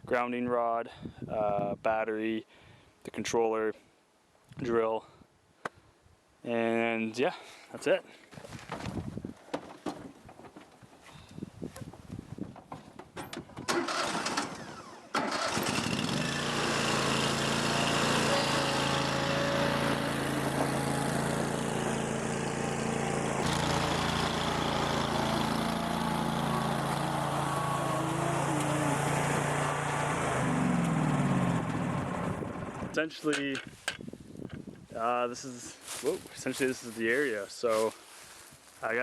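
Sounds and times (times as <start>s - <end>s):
small engine cranking: 13.7s - 22.8s, 23.4s - 32.1s
small engine running: 13.7s - 32.9s.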